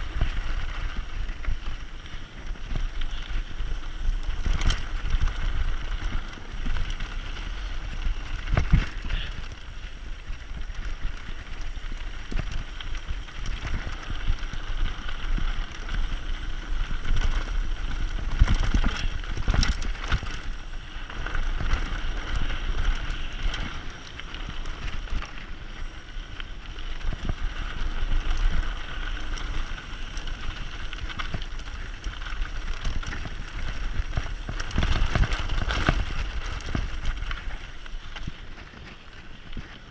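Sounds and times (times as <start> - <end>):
bike tyres rolling over stones: 0.0 - 39.9
wind rumbling on microphone: 0.0 - 39.9.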